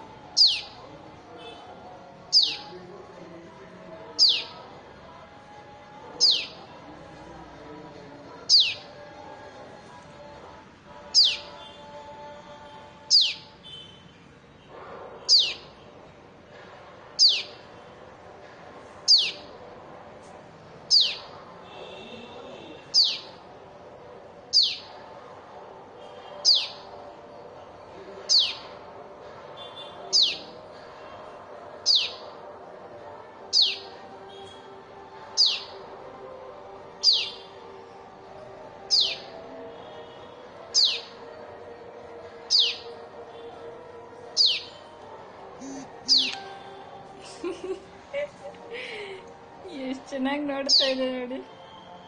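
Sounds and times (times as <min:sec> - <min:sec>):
baby bird chirping: 0:00.4 - 0:00.7, 0:02.3 - 0:02.7, 0:04.2 - 0:04.5, 0:06.2 - 0:06.6, 0:08.5 - 0:08.8, 0:11.1 - 0:11.6, 0:13.1 - 0:13.4, 0:15.3 - 0:15.7, 0:17.2 - 0:17.6, 0:19.1 - 0:19.4, 0:20.9 - 0:21.3, 0:22.9 - 0:23.3, 0:24.5 - 0:24.9, 0:26.4 - 0:26.8, 0:28.3 - 0:28.6, 0:30.1 - 0:30.5, 0:31.8 - 0:32.2, 0:33.5 - 0:33.9, 0:35.4 - 0:35.7, 0:37.0 - 0:37.4, 0:38.9 - 0:39.3, 0:40.7 - 0:41.1, 0:42.5 - 0:42.9, 0:44.4 - 0:44.8, 0:45.6 - 0:46.5.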